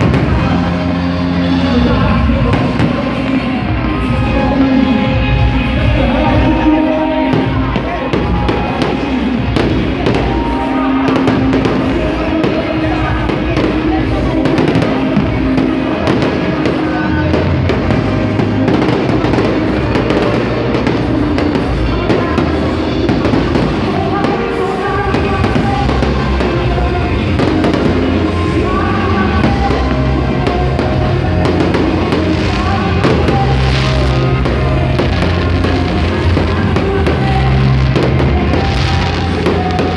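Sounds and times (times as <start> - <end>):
fireworks going off: 0.0 - 39.9
loud music with a beat: 0.0 - 39.9.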